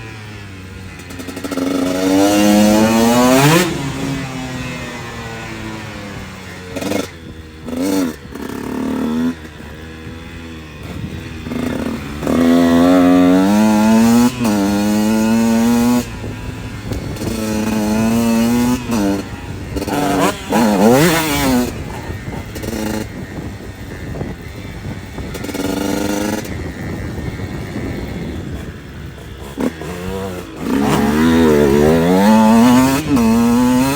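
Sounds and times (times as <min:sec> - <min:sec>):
motocross bike engine revving: 0:00.0 - 0:33.9.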